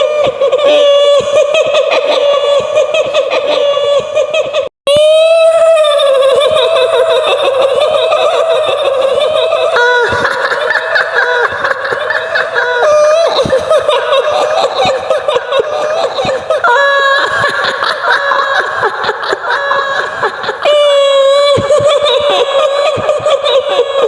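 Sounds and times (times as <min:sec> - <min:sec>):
woman's shrill cackling laugh: 0:05.9 - 0:24.0.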